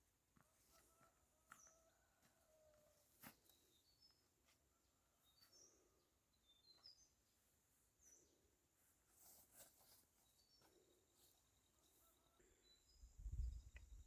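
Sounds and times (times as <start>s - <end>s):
small birds chirping: 3.2s - 4.6s, 5.2s - 14.0s.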